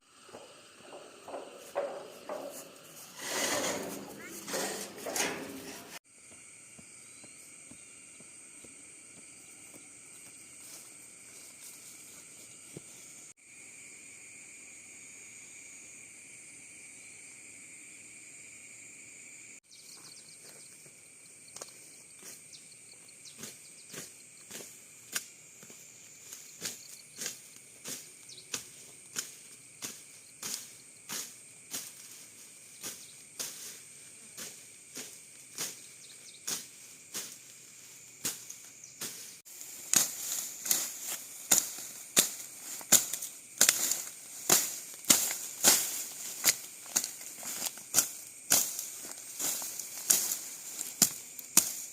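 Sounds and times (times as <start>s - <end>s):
high insect drone: 0.0s - 51.9s
hand tool knocking on wood: 0.3s - 5.6s.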